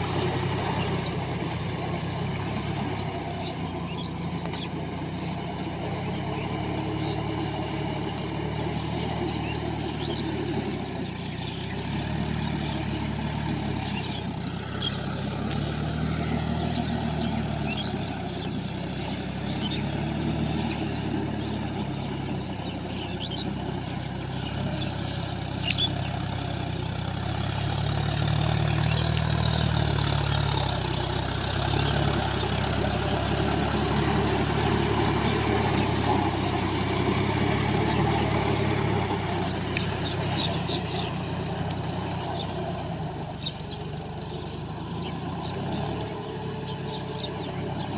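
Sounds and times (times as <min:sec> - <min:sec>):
tractor diesel engine under load: 0:00.0 - 0:47.9
faint clicks: 0:39.7 - 0:40.0.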